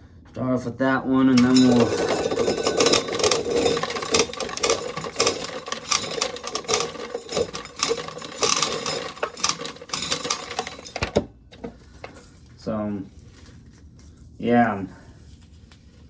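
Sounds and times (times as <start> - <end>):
corn sheller gears turning: 1.3 - 12.2
corn kernels rattling off: 1.4 - 11.7.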